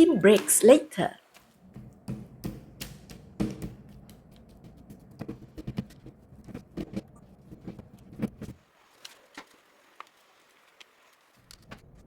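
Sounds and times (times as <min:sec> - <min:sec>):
utensil tapping a baking tray: 0:01.7 - 0:07.0.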